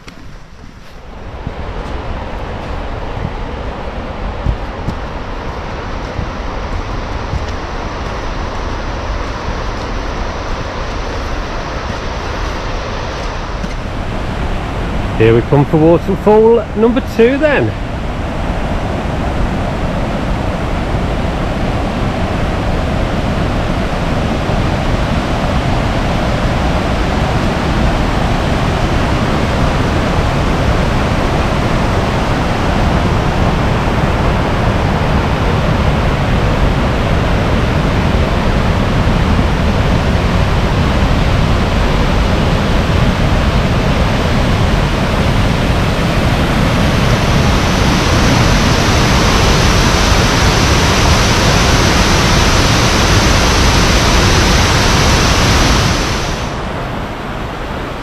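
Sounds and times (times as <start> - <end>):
waterfall rushing: 11.6 - 17.8, 45.9 - 57.6.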